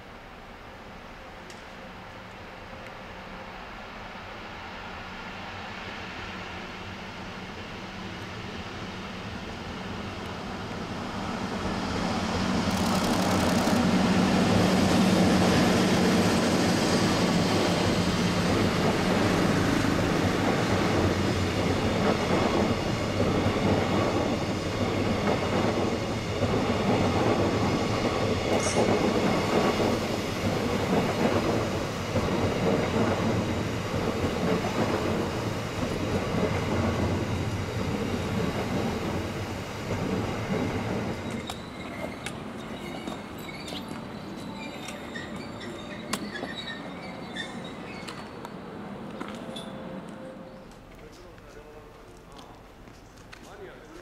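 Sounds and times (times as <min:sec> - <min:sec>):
electric locomotive humming: 0:00.0 - 0:53.9
train wheels clacking over rail joints: 0:12.6 - 0:14.0
high squeak: 0:41.3 - 0:48.4.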